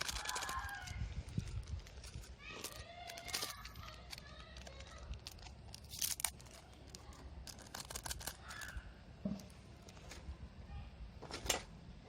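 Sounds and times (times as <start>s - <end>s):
twig fire crackling: 0.0s - 9.1s.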